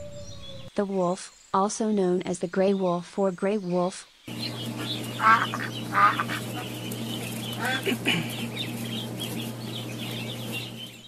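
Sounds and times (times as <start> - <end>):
faint bird chatter: 0.0 - 1.8, 2.5 - 11.0
falling bird call: 4.3 - 11.0
steady low hum: 4.3 - 11.0
loud short bird calls: 4.4 - 9.3.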